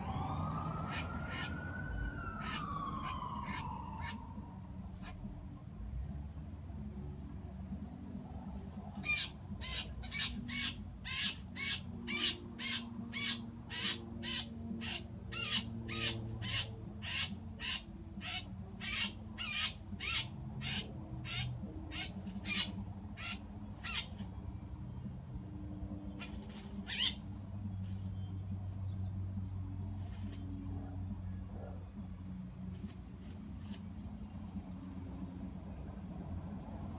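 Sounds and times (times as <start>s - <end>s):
blue jay distress screams: 0.6s - 5.3s, 8.9s - 24.3s, 26.2s - 27.2s.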